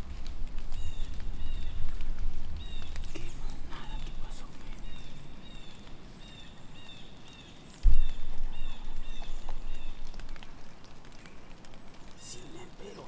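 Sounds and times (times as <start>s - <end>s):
low rumble: 7.8s - 10.4s
sudden low thump: 7.9s - 8.3s.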